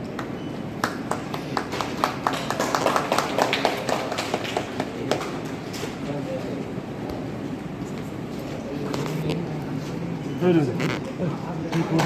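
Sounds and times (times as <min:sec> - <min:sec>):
group hand-clapping: 0:00.1 - 0:05.6.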